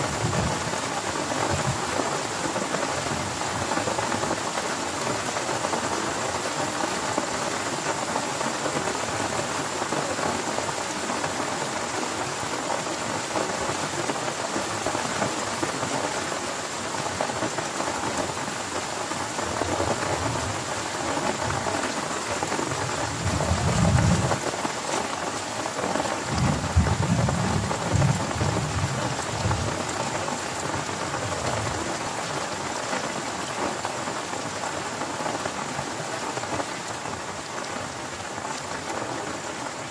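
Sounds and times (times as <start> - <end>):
heavy rain falling: 0.0 - 39.9
thunder rumbling: 23.0 - 24.4, 26.3 - 29.8.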